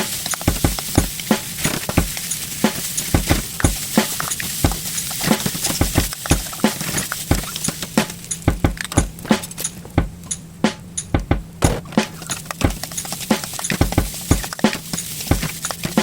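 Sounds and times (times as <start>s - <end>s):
rice sizzling in a pan: 0.0s - 8.4s, 12.2s - 16.0s.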